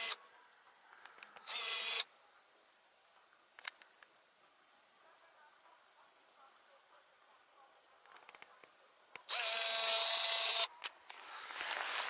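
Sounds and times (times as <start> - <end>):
zoom lens motor whirring: 0.0 - 0.2, 1.4 - 2.1, 9.3 - 10.7
faint camera clicks: 3.6 - 4.0.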